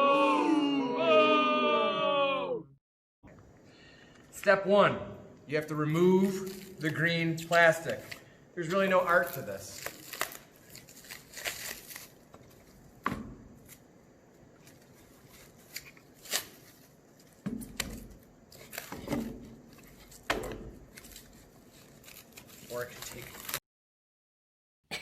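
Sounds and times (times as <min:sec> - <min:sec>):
plastic wrapping crinkling and tearing: 0:06.0 - 0:12.9, 0:14.6 - 0:17.4, 0:18.1 - 0:23.6.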